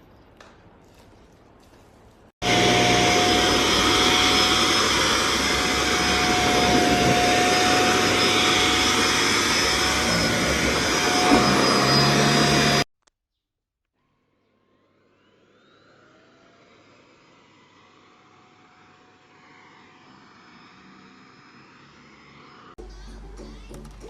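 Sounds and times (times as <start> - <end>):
vacuum cleaner whirring: 2.4 - 12.9, 15.0 - 22.8.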